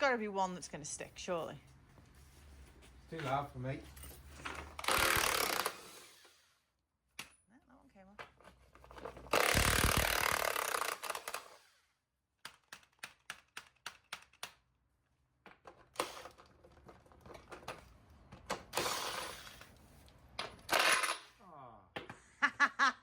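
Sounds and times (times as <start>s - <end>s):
impact wrench hammering: 4.8s - 6.1s, 9.3s - 11.6s.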